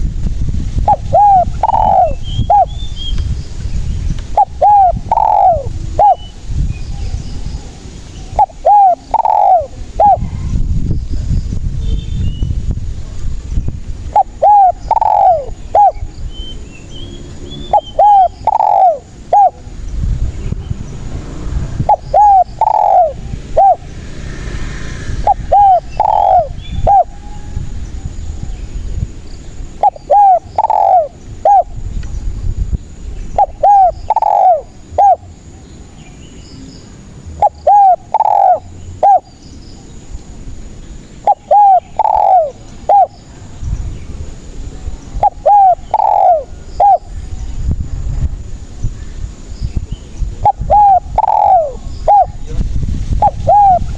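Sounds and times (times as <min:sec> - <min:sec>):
dove cooing: 0:00.8 - 0:02.8, 0:04.3 - 0:06.4, 0:07.0 - 0:10.6, 0:14.1 - 0:16.1, 0:17.6 - 0:19.7, 0:21.7 - 0:23.9, 0:25.2 - 0:27.5, 0:29.6 - 0:31.8, 0:33.3 - 0:35.6, 0:37.4 - 0:39.3, 0:41.2 - 0:43.2, 0:45.2 - 0:47.2, 0:50.4 - 0:53.9.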